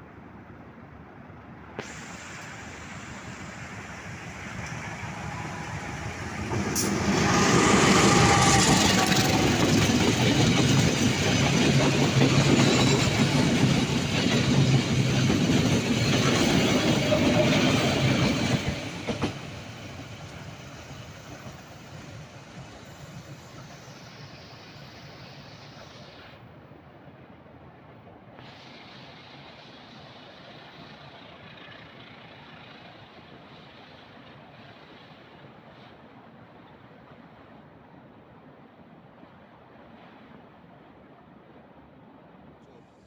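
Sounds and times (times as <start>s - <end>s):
train wheels clattering: 4.6s - 22.0s.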